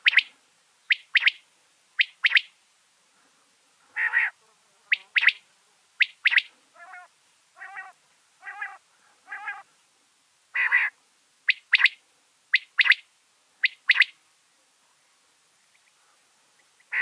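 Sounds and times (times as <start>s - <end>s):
bird giving harsh calls: 4.0s - 5.4s, 6.0s - 9.6s, 10.5s - 12.0s, 13.6s - 14.1s.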